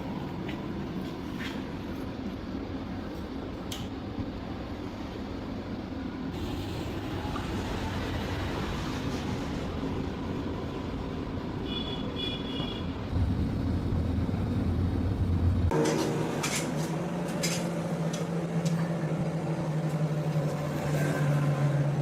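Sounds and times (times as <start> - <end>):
machinery humming: 12.4 - 22.0.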